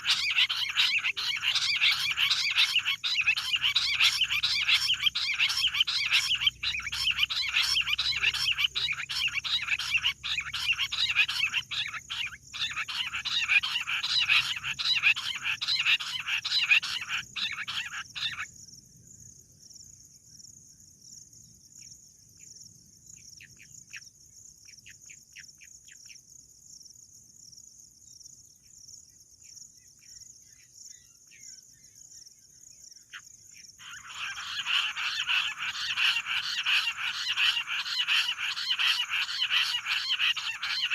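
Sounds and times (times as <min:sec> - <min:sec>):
quail chattering chorus: 0:00.0 - 0:18.5, 0:33.8 - 0:40.9.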